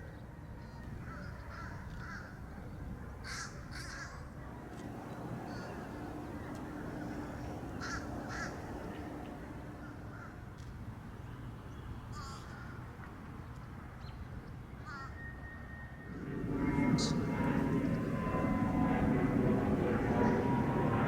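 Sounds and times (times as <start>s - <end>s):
low background rumble: 4.5s - 10.5s, 16.1s - 21.0s
crows cawing: 5.5s - 10.2s.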